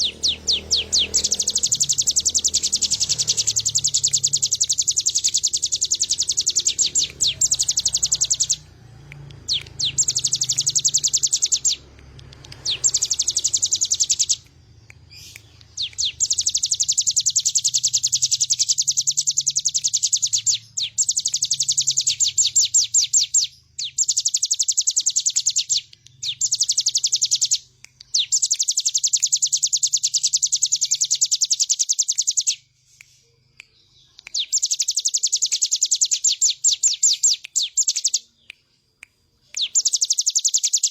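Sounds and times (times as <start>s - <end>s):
bird singing buzzy notes: 0.0s - 32.9s.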